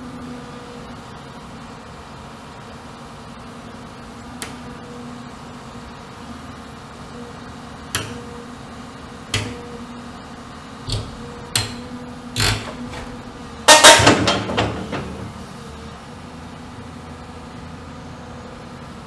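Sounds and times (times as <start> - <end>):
metal-on-metal bangs: 9.4 - 9.8, 10.9 - 15.8.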